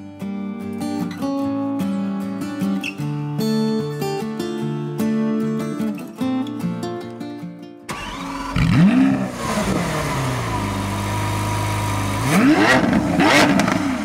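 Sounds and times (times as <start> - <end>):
car engine starting and idling: 7.9 - 14.0.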